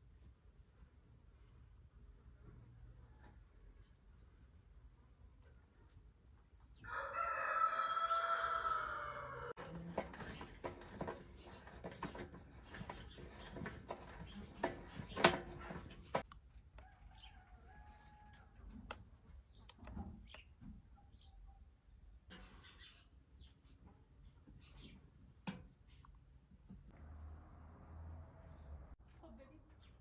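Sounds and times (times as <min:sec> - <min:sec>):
small birds chirping: 0:19.3 - 0:26.4, 0:27.2 - 0:30.0.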